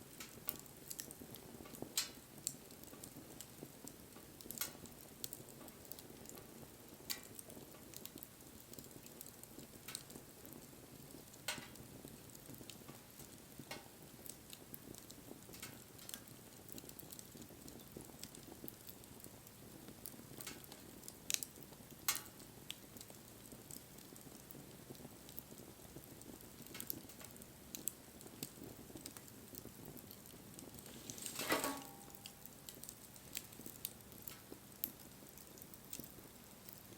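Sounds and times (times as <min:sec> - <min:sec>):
wood popping in fire: 0:00.0 - 0:36.9
fire hissing: 0:23.9 - 0:36.9.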